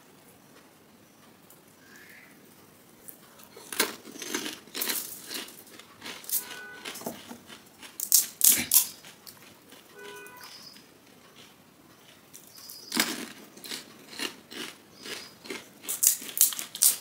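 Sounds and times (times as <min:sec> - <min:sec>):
crunchy chewing close up: 0:03.1 - 0:17.0.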